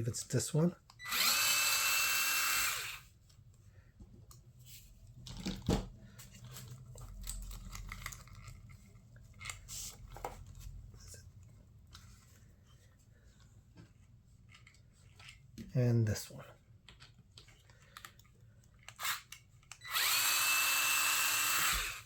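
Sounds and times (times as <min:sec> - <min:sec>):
small parts clicking and rattling: 0:06.3 - 0:10.5.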